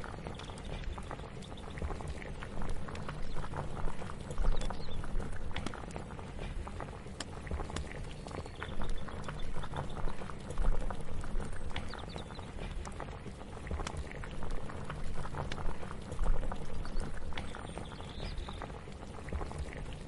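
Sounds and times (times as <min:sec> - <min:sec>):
pops and crackles: 0:00.0 - 0:20.0
pot bubbling at the boil: 0:00.0 - 0:20.0
steady low rumble: 0:00.0 - 0:20.0.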